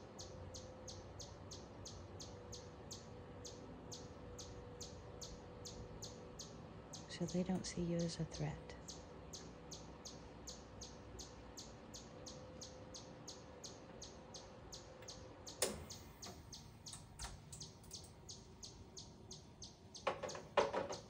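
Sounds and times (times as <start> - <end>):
small bird chip notes: 8.9 - 21.0.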